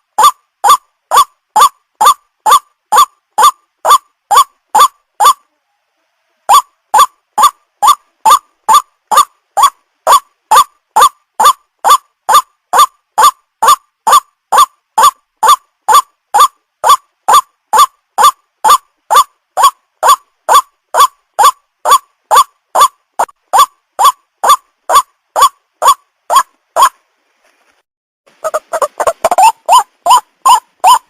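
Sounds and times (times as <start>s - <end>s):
waterhen honking call: 0.2s - 5.5s, 28.4s - 31.0s.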